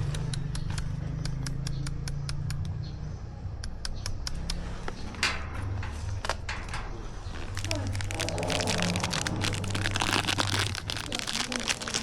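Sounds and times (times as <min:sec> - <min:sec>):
sharp clicks: 0:00.0 - 0:02.8, 0:03.6 - 0:08.0
rough crunch: 0:07.2 - 0:12.0.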